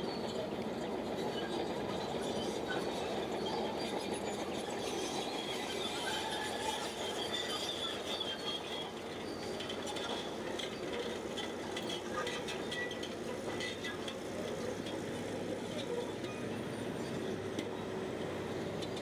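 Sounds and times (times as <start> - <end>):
bulldozer running: 0.0 - 19.0
faint high squeals: 1.2 - 10.2.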